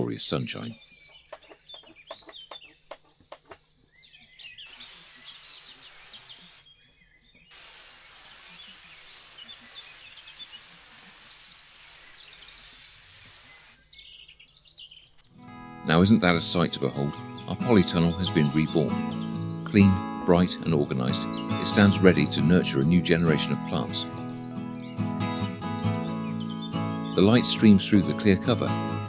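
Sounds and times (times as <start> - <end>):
outdoor background noise: 0.0 - 16.1
birds chirping and singing: 0.0 - 29.0.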